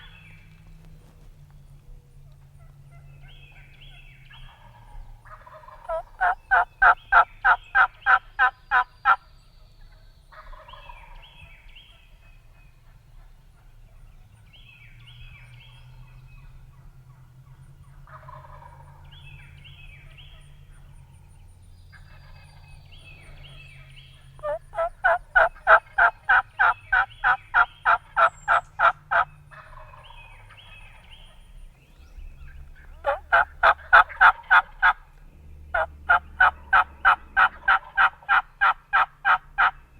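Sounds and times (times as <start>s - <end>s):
turkey calling: 2.6s - 9.2s, 23.2s - 35.0s, 35.7s - 39.8s.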